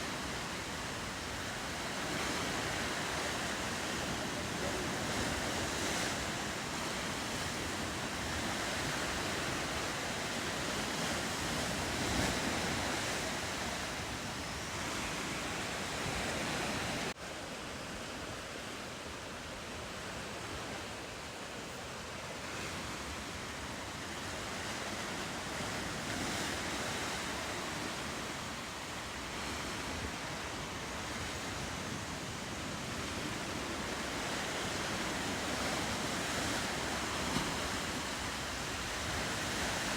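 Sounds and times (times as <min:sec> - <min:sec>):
ocean surf: 0:00.0 - 0:39.9
wind: 0:00.0 - 0:39.9.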